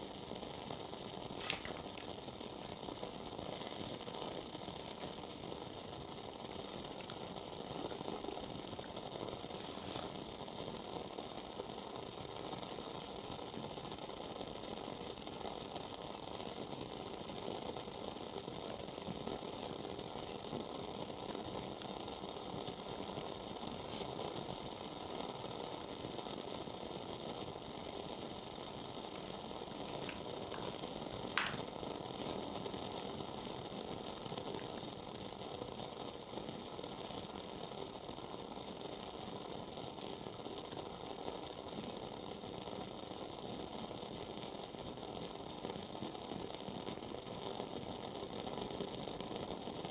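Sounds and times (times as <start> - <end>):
candle wick crackling: 0.6 - 11.2, 23.6 - 36.0
candle wick popping: 1.2 - 4.1, 4.8 - 10.3, 29.0 - 32.7.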